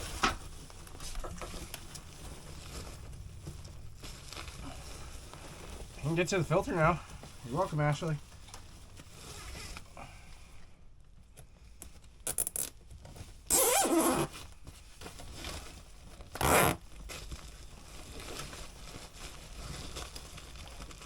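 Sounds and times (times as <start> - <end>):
zipping rasps: 13.5 - 14.3, 16.4 - 16.8.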